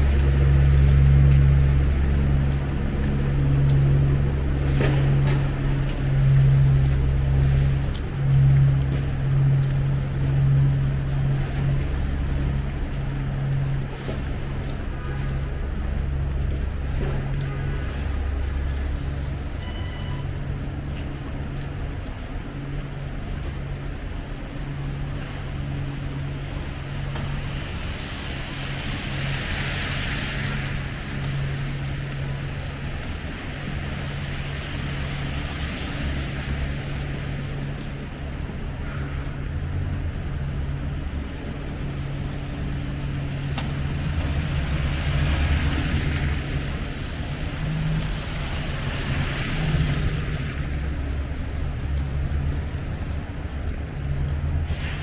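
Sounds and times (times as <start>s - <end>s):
low engine hum: 0.0s - 55.0s
tyres hissing on wet road: 0.0s - 55.0s.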